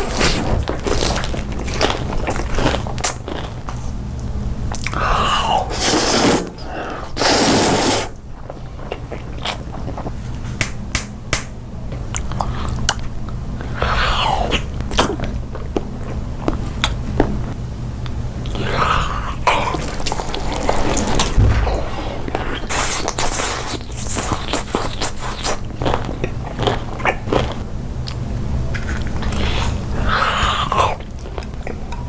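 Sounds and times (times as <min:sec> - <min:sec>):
crunchy chewing: 0:00.0 - 0:10.5, 0:18.0 - 0:32.0.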